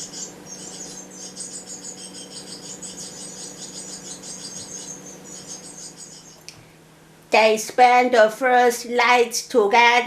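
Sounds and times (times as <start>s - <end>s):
nestlings begging calls: 0.0s - 6.5s
steady low hum: 0.0s - 10.0s.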